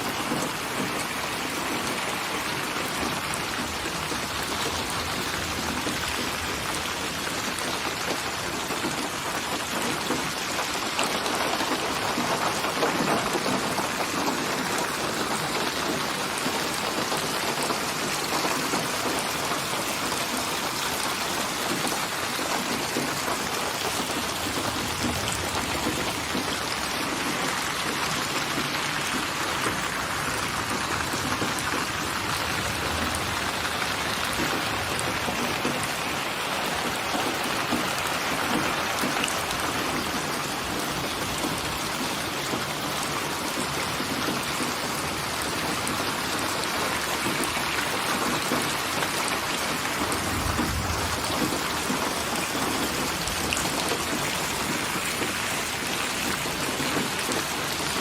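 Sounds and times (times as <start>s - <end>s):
heavy rain falling: 0.0s - 58.0s
low rumble: 50.2s - 51.4s.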